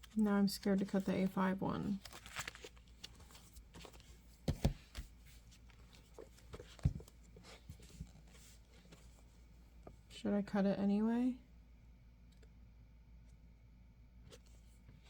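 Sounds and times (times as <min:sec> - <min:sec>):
plastic covers clicking and rustling: 0:02.0 - 0:05.0.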